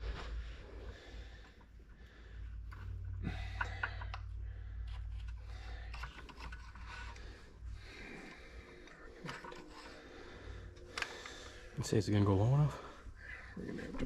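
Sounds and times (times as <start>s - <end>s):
low steady hum: 0.0s - 14.0s
metal tools clicking and scraping: 8.2s - 10.0s.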